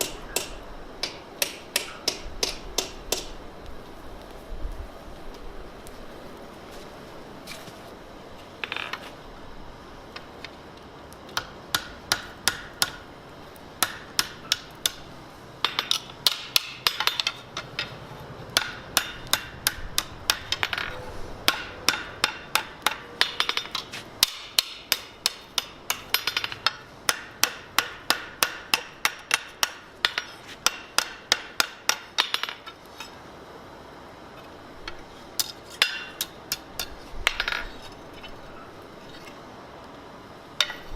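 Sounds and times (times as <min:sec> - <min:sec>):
hammer striking metal on anvil: 0:00.0 - 0:03.3, 0:15.6 - 0:18.0, 0:18.6 - 0:32.6.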